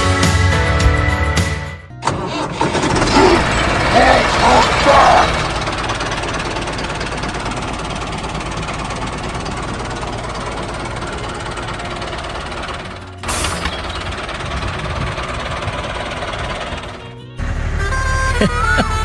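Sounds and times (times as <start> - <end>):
small engine knocking: 2.6 - 17.1.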